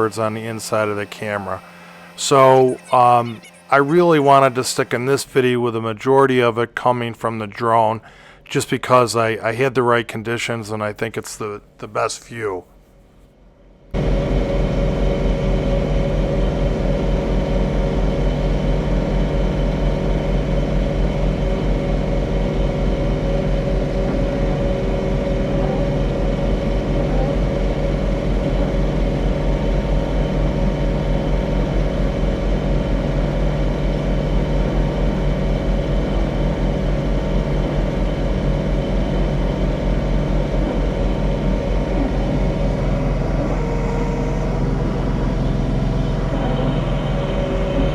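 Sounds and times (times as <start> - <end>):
tractor diesel engine under load: 0.0 - 6.9, 19.4 - 47.9.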